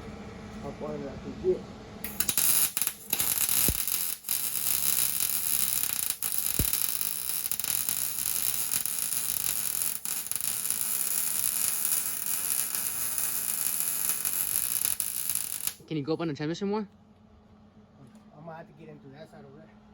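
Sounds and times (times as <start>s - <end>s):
welding arc crackling: 2.0s - 15.8s.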